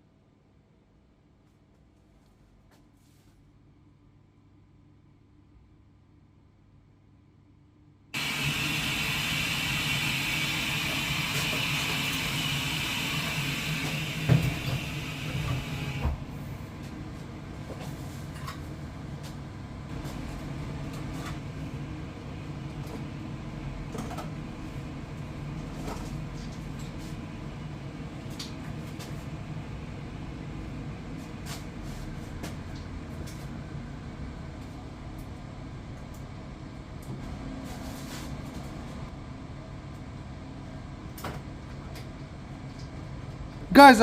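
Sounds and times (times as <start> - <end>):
gas boiler humming: 8.2 - 44.0.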